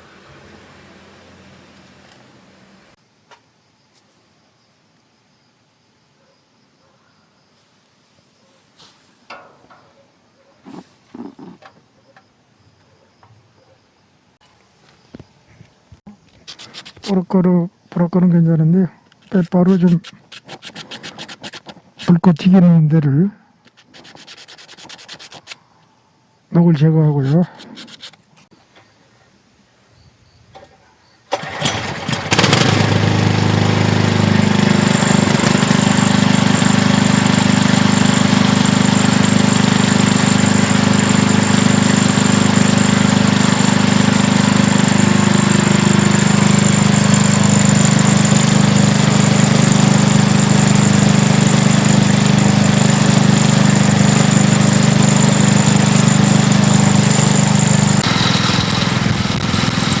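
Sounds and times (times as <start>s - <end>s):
small gasoline engine running: 19.7s - 21.7s, 31.3s - 60.0s.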